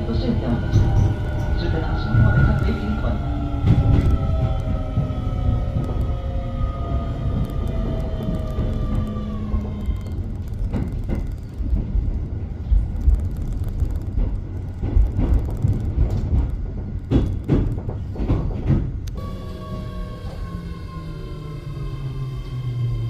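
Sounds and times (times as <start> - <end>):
train rolling rumble: 0.0 - 23.0
train motor whine: 19.1 - 23.0.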